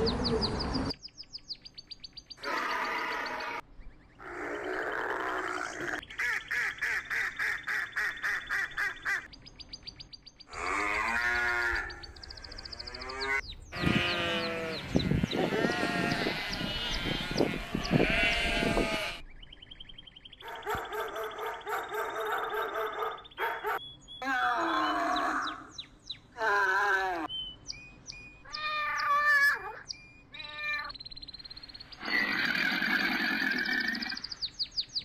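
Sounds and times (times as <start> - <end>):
animal calls: 2.4 - 3.6, 10.5 - 19.2, 20.4 - 25.8, 32.0 - 34.4
rapid repeated animal calls: 2.4 - 3.6, 31.9 - 34.4
sheep bleating: 12.9 - 19.2.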